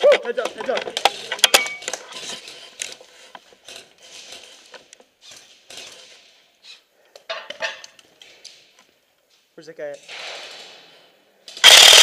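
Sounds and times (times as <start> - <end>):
mechanical clicks and rattles: 11.6 - 12.0.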